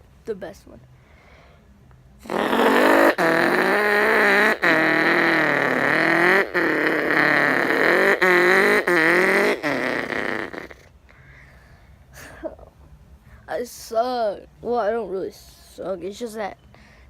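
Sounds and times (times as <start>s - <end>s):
person imitating car engine: 2.2s - 10.9s.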